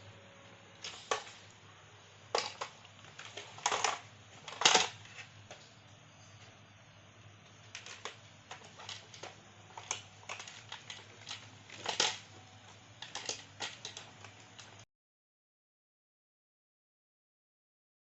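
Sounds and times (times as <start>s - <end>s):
faint steady hum: 0.0s - 14.9s
plastic parts clicking: 2.3s - 5.3s, 7.7s - 12.3s, 13.0s - 14.8s.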